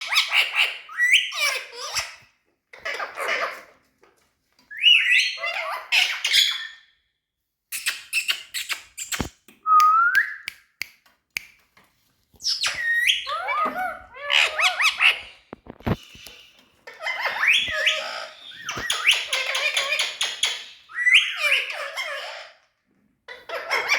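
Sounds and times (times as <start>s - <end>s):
parakeet squawky chattering: 12.5s - 15.5s.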